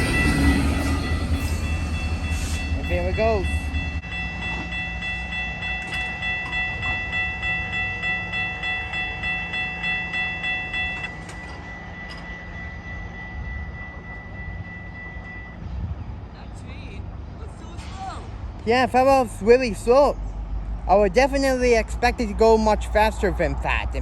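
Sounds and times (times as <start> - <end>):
crossing signal bell: 0.0 - 15.7
steady high tone: 0.0 - 15.7
train rumbling over crossing: 0.0 - 24.0.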